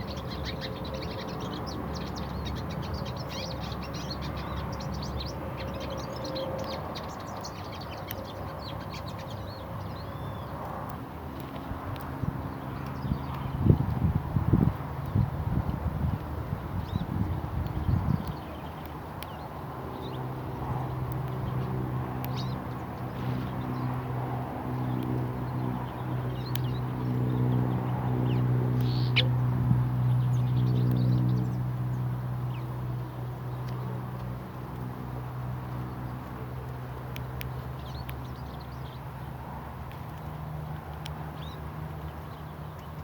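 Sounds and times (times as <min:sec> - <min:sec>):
bird chirps: 0:28.2 - 0:29.4.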